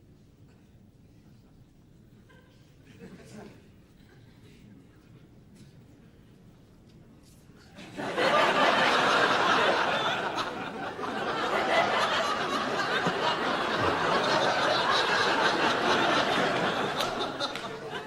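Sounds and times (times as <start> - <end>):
audience laughing: 7.8 - 18.0.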